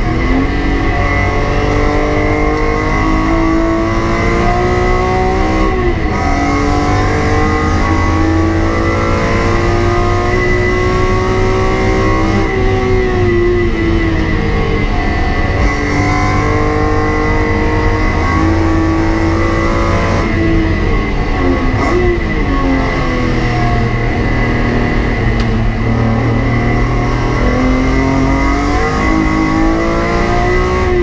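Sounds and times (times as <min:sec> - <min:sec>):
car engine accelerating hard: 0:00.0 - 0:31.0.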